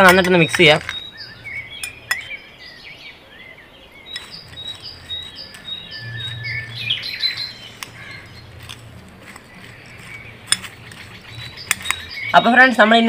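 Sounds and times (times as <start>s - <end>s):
small birds chirping: 0.0s - 13.0s
sharp clicks: 7.2s - 12.3s.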